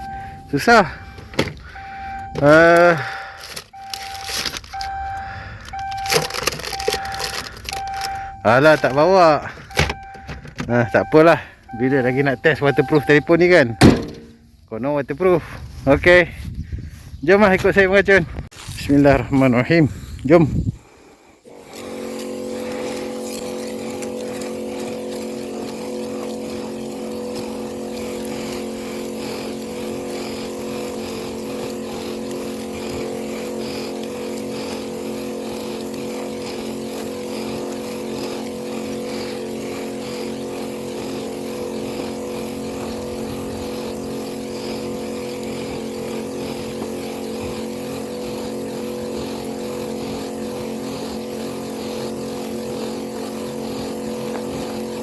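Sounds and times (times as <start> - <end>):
power sprayer engine running: 0.0 - 15.8, 19.0 - 55.0.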